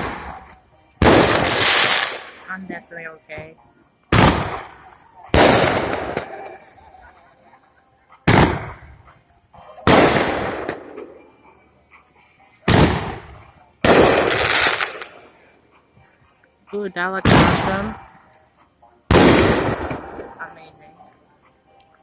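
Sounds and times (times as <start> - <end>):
fireworks banging: 0.0 - 2.5, 4.1 - 6.7, 8.3 - 9.0, 9.9 - 11.2, 12.7 - 15.4, 17.2 - 18.1, 19.1 - 20.4.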